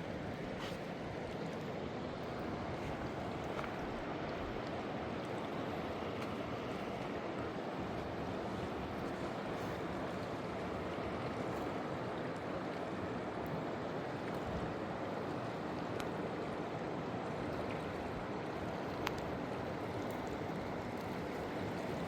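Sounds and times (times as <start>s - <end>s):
river rushing: 0.0s - 22.0s.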